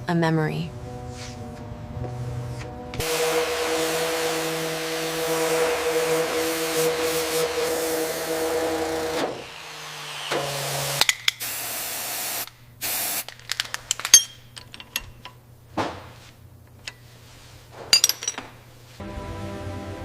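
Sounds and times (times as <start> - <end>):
compressed air spraying hiss: 3.0 - 8.2, 11.4 - 13.2.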